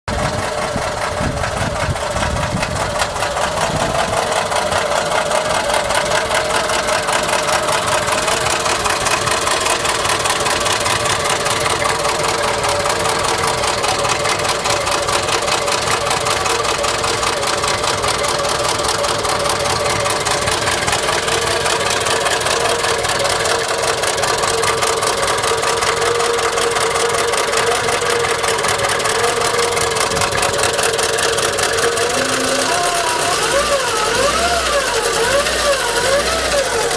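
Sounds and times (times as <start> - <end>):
car engine knocking: 0.0 - 36.9.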